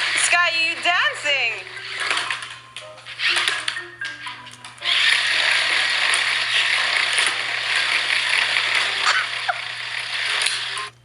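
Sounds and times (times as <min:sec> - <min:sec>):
toy car motor whirring: 0:03.1 - 0:03.6, 0:04.8 - 0:10.9.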